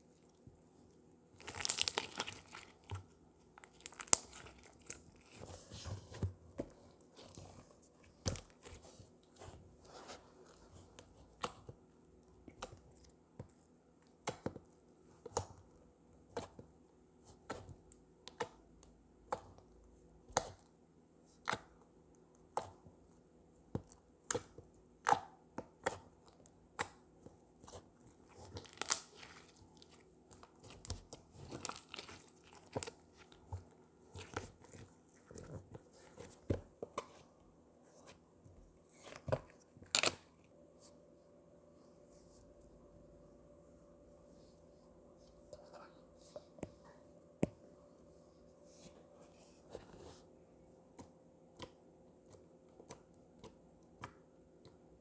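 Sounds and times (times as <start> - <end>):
slime crackling when stretched: 1.4 - 2.6.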